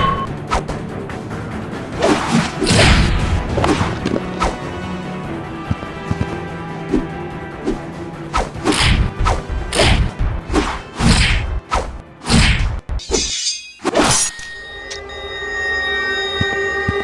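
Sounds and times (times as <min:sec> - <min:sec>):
background music: 0:00.0 - 0:17.0
whooshing swings: 0:02.0 - 0:04.6, 0:06.9 - 0:14.4.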